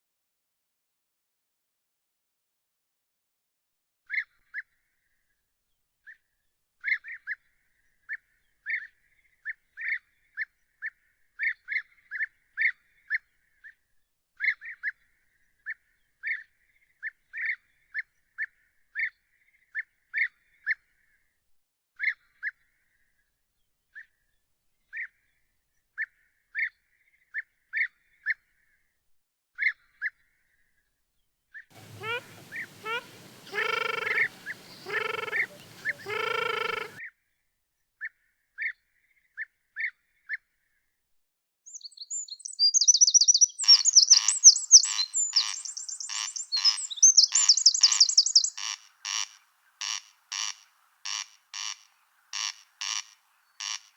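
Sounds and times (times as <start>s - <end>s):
bird calling in sharp high notes: 31.8s - 37.0s.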